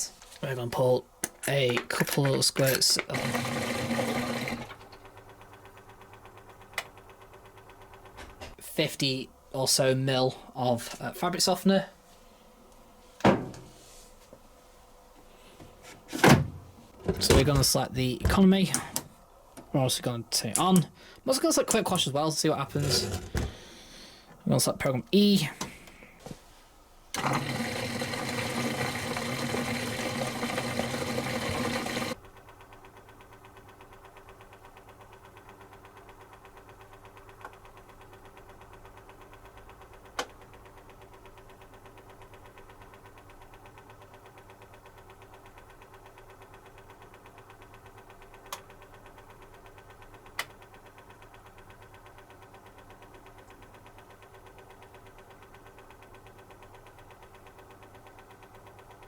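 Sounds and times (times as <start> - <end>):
washing machine water rushing: 27.2 - 32.2.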